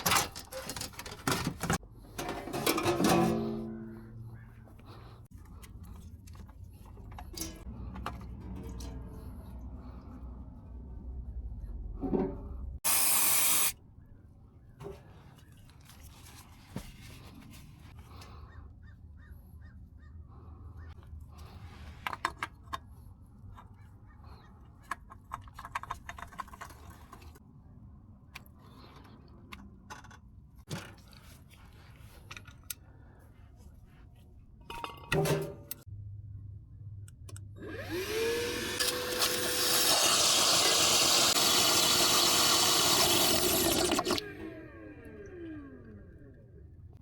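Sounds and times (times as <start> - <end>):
tools and parts clattering: 0.0 - 4.5, 6.0 - 9.4, 34.6 - 35.9.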